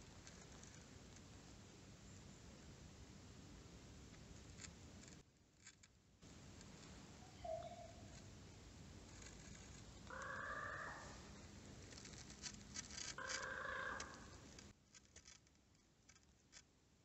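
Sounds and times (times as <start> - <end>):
bird drawn-out calls: 7.2 - 8.2, 10.0 - 11.4, 13.1 - 14.4
faint clicks: 11.8 - 16.7.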